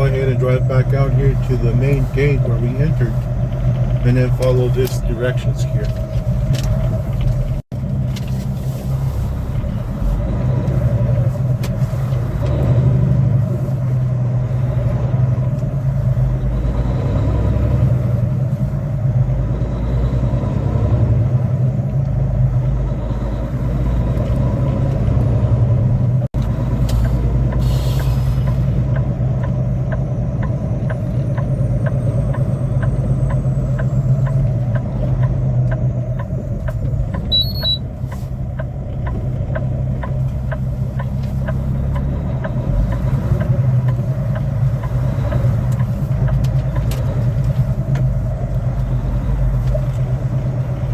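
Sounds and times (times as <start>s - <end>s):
regular ticking: 0.0s - 8.3s, 9.6s - 50.9s
diesel truck engine running: 0.0s - 50.9s
short high beep: 37.3s - 37.8s.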